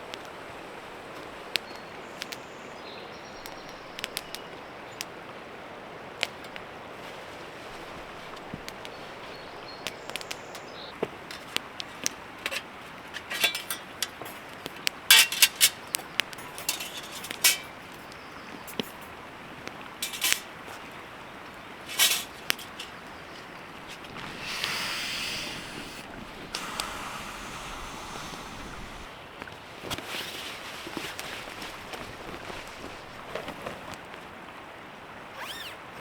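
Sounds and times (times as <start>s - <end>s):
camp gear clicks and knocks: 6.2s - 24.7s, 29.4s - 34.3s, 35.4s - 35.8s
gear rustling: 11.1s - 17.9s, 20.0s - 20.8s, 21.8s - 24.3s.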